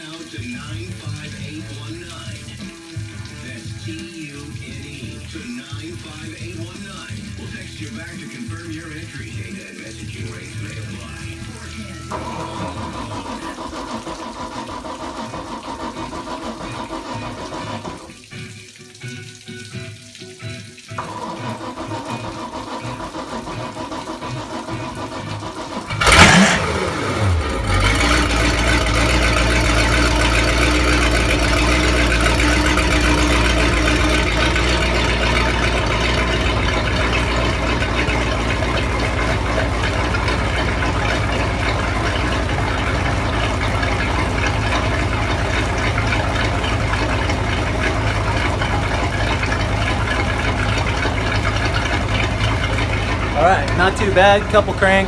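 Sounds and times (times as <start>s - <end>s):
boat engine revving and idling: 8.8s - 18.0s, 21.0s - 55.0s
starter motor cranking: 10.2s - 18.1s, 21.0s - 55.0s.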